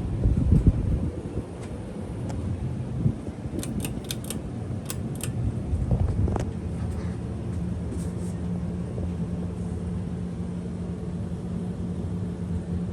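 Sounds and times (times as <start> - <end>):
ceiling fan motor hum: 3.3 - 7.0
brief click: 3.6 - 5.3.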